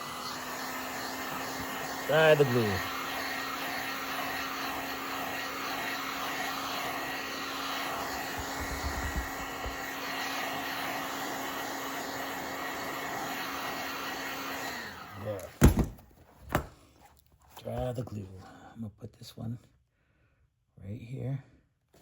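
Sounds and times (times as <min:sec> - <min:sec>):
heat gun blowing air: 0:00.0 - 0:15.9.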